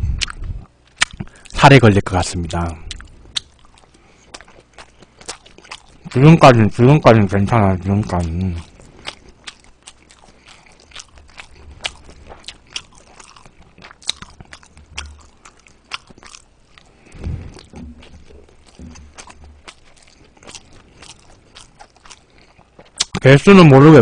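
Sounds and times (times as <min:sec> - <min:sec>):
person chewing food: 0:00.0 - 0:01.6, 0:02.6 - 0:06.5, 0:07.6 - 0:23.2
low thump: 0:17.2 - 0:18.1.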